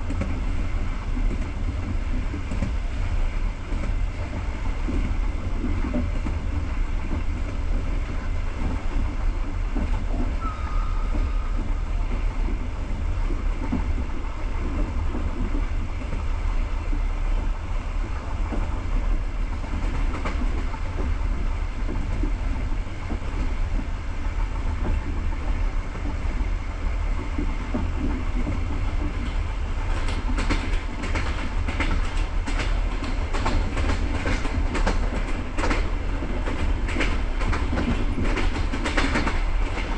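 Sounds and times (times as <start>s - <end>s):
train wheels rumbling on track: 0.0s - 39.9s
wheels clicking over rail joints: 18.1s - 39.9s.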